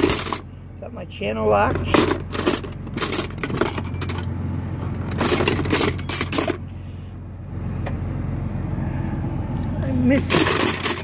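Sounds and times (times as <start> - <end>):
metal tools clattering in toolbox: 0.0 - 0.4, 1.7 - 4.3, 5.0 - 6.6, 10.2 - 11.0.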